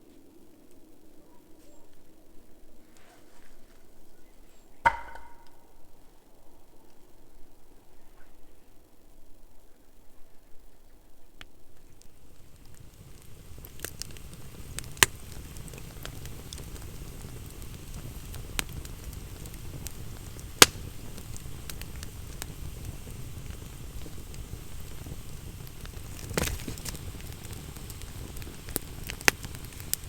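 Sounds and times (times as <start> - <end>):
campfire crackling: 0.0 - 30.0
loud fire pops: 4.8 - 5.6, 12.0 - 30.0.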